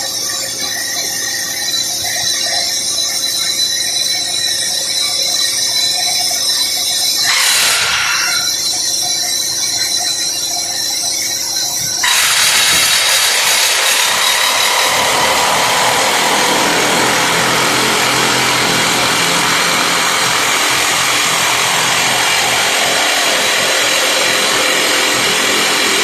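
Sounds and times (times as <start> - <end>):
rock drill drilling: 7.2 - 8.6, 12.0 - 26.0
hydraulics hissing: 7.2 - 8.7, 12.0 - 26.0.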